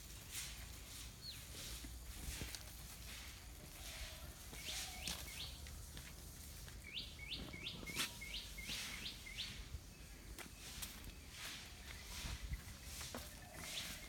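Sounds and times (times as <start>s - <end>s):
small bird chirping: 3.8s - 5.7s, 6.8s - 14.0s.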